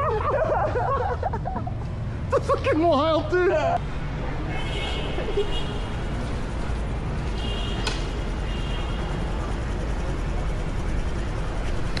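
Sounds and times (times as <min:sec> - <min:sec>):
street traffic rumble: 0:00.0 - 0:12.0
sharp click: 0:07.8 - 0:08.1.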